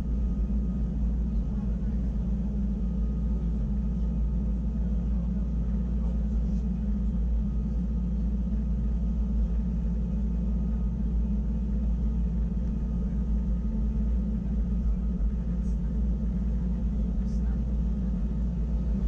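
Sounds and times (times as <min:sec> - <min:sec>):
electric train rumbling and humming: 0:00.0 - 0:19.0.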